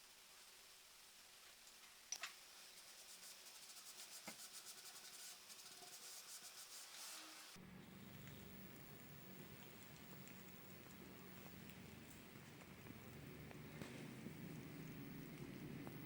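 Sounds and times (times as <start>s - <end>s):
rubbing strokes on wood: 2.6s - 7.6s
faint low hum: 7.6s - 16.0s.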